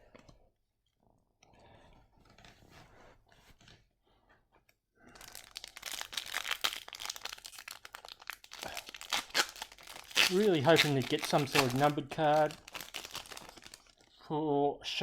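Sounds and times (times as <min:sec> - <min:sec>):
foil wrapper tearing and crinkling: 0:05.2 - 0:14.1
rustling of trading cards: 0:05.2 - 0:14.1.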